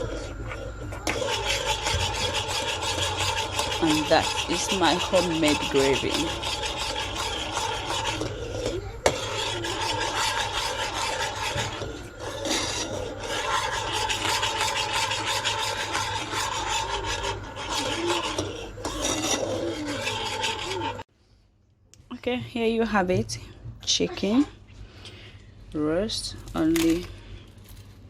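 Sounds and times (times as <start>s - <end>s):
utensil scraping a pan: 0.0s - 21.1s
faint hum: 0.0s - 28.0s.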